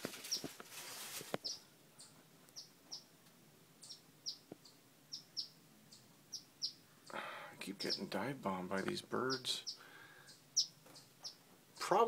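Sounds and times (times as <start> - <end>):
faint bird chirps: 1.4 - 3.1, 3.8 - 7.2, 9.2 - 12.0.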